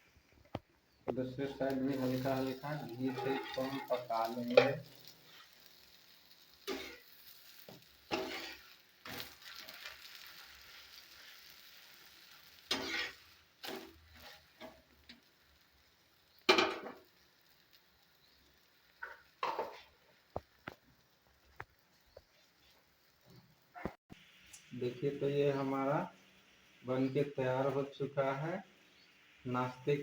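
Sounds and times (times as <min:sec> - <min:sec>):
ghee sizzling on pan: 0:00.0 - 0:30.0
utensil scraping pan: 0:01.7 - 0:05.5, 0:12.7 - 0:14.8.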